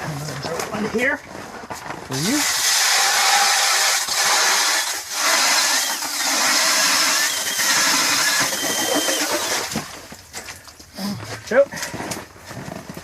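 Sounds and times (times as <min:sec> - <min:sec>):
ice auger engine running: 0:05.2 - 0:09.7.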